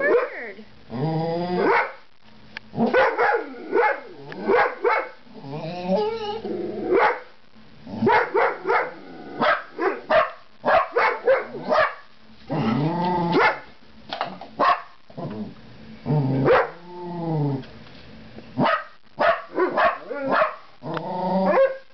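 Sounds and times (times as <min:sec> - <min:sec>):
dogs barking excitedly: 0:00.0 - 0:00.4, 0:01.6 - 0:02.0, 0:02.8 - 0:05.2, 0:06.9 - 0:07.3, 0:08.0 - 0:12.2, 0:13.3 - 0:13.8, 0:14.6 - 0:15.0, 0:16.4 - 0:16.8, 0:18.6 - 0:20.7, 0:21.5 - 0:21.9
dog whining yowls: 0:05.6 - 0:06.4.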